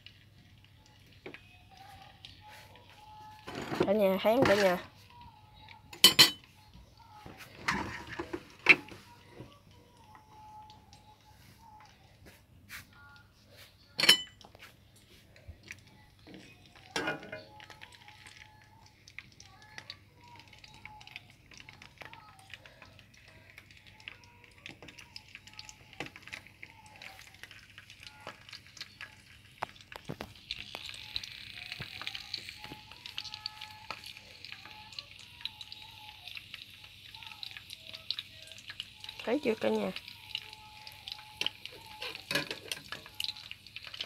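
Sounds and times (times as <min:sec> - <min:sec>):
okra sizzling in hot oil: 0:16.5 - 0:44.0.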